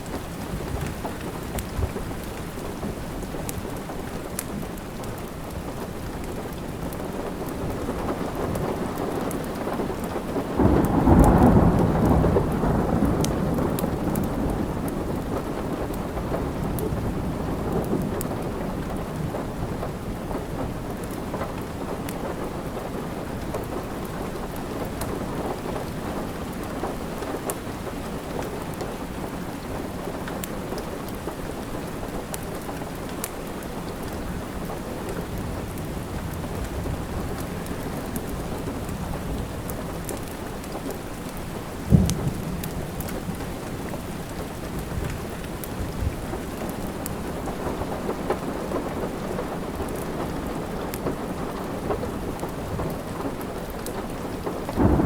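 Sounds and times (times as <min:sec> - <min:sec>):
wood fire crackling: 0:00.0 - 0:10.4, 0:20.0 - 0:55.0
steady rain: 0:00.0 - 0:55.0.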